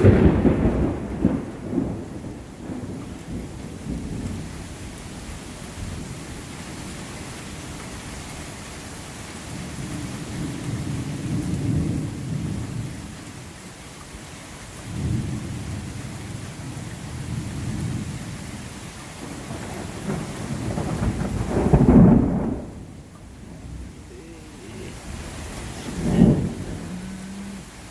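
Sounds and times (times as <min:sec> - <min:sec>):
thunder rumbling: 0:00.0 - 0:04.5, 0:19.2 - 0:27.9
steady rain: 0:00.0 - 0:27.9.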